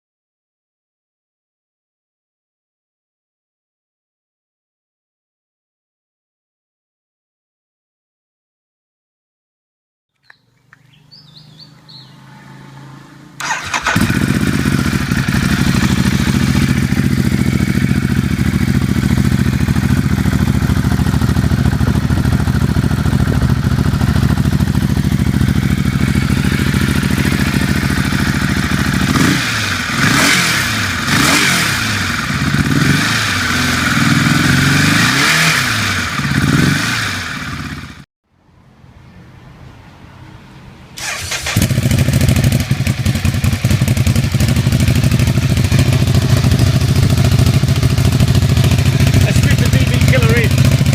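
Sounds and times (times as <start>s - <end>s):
motorcycle engine idling: 10.4s - 12.4s, 13.4s - 32.8s, 41.0s - 50.9s
motorcycle engine revving: 10.6s - 38.1s, 41.0s - 50.9s.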